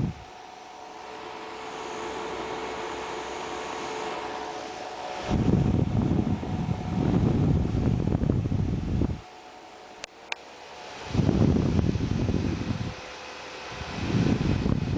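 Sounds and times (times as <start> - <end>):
air buffeting microphone: 0.0 - 0.4, 4.0 - 9.3, 10.8 - 14.9
portable fan whirring: 0.0 - 14.9.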